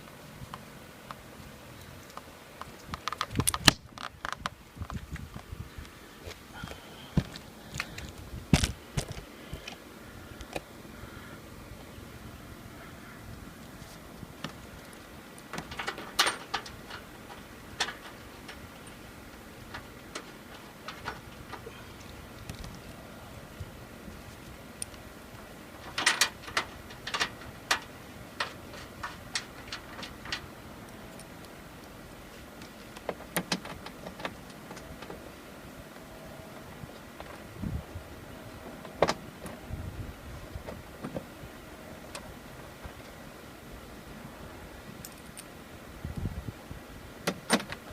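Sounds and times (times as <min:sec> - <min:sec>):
faint background noise: 0:00.0 - 0:47.9
clicks and knocks of hand tools: 0:14.4 - 0:19.0, 0:25.8 - 0:30.5.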